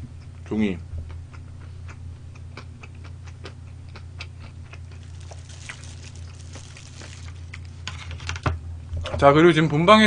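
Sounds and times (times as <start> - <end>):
low electrical hum: 0.0 - 10.0
crunchy chewing: 1.1 - 8.4.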